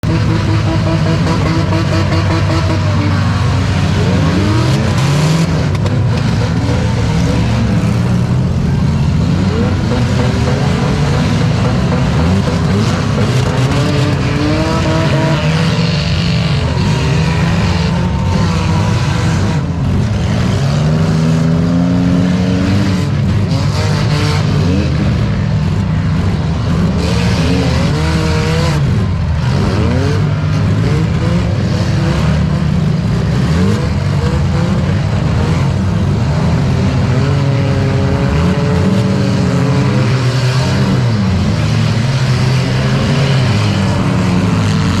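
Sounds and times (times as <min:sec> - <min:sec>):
car engines revving: 0:00.0 - 0:45.0.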